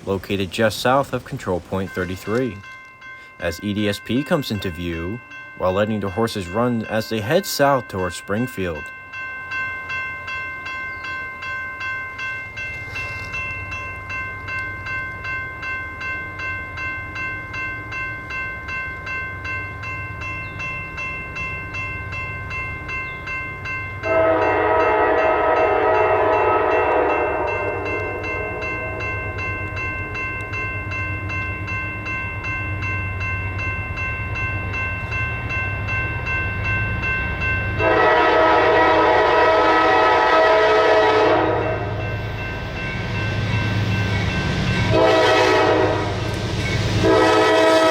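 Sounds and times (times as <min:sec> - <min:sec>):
crossing bell ringing: 0:00.0 - 0:47.9
diesel locomotives rumbling: 0:00.0 - 0:47.9
train air horn blast: 0:24.0 - 0:29.4, 0:37.8 - 0:42.0, 0:44.9 - 0:46.4, 0:47.0 - 0:47.9.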